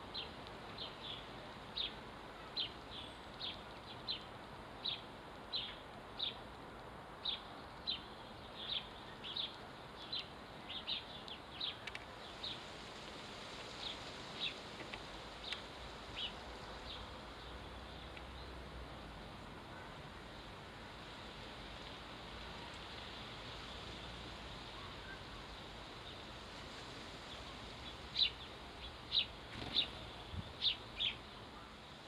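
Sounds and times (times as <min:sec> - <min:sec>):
faint background noise: 0:00.0 - 0:32.0
sparrow chirping: 0:28.1 - 0:31.7.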